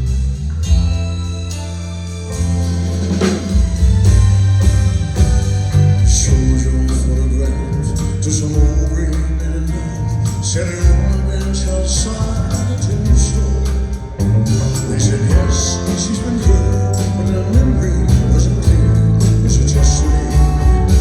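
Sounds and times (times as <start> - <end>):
live band playing country ballad: 0.0 - 21.0
man singing: 5.8 - 21.0.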